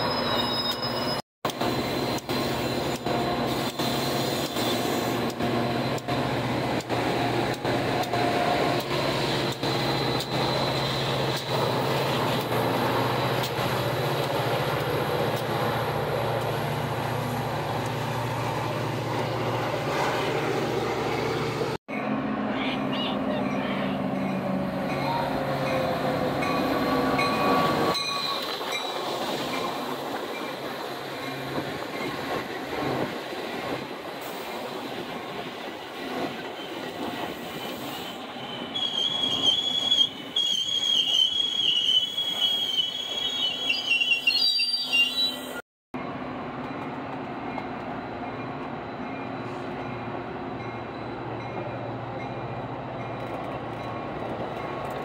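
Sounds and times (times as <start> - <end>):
metallic wheel and brake squeal: 0.0 - 1.2, 1.8 - 6.0, 9.3 - 11.5, 27.2 - 29.1, 36.5 - 45.6
train cars rolling by: 0.0 - 55.0
locomotive engine passing: 5.0 - 34.2.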